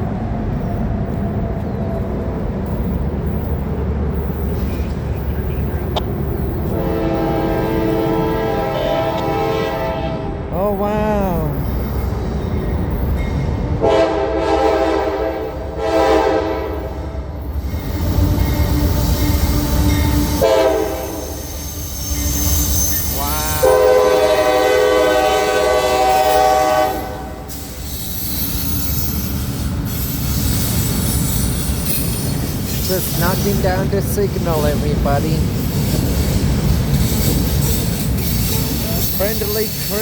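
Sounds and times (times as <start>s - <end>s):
train rumbling past: 0.0s - 40.0s
locomotive air horn blasts: 6.7s - 10.4s, 13.8s - 16.8s, 18.9s - 21.3s, 23.6s - 27.5s.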